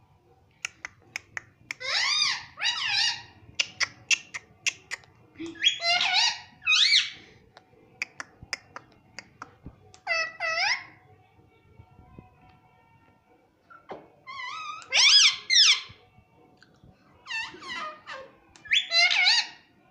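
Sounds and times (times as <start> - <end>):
parrot shrill calls: 1.8 - 3.8, 5.6 - 7.2, 10.0 - 11.0, 14.3 - 15.9, 17.2 - 19.6.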